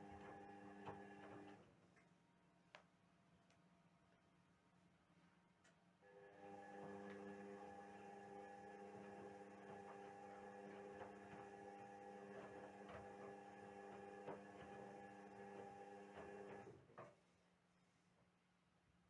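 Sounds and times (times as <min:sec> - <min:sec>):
washing machine motor hum: 0:00.0 - 0:01.6, 0:06.4 - 0:16.7.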